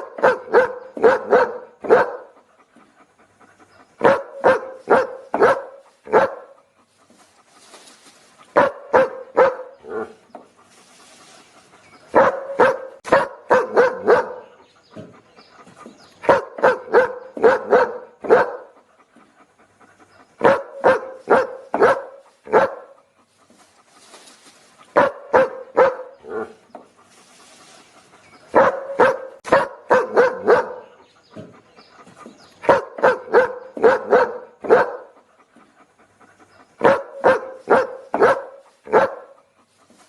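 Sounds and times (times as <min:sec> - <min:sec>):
dog barking: 0:00.0 - 0:02.4, 0:04.0 - 0:06.6, 0:08.5 - 0:10.2, 0:12.1 - 0:15.1, 0:16.2 - 0:18.8, 0:20.4 - 0:23.0, 0:24.9 - 0:26.6, 0:28.5 - 0:31.5, 0:32.6 - 0:35.2, 0:36.8 - 0:39.5.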